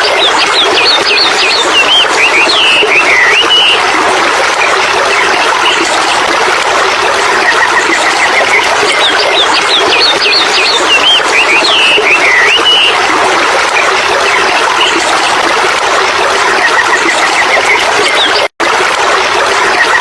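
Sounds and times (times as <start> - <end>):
songbird whistling song: 0.2 - 3.8, 7.7 - 13.0.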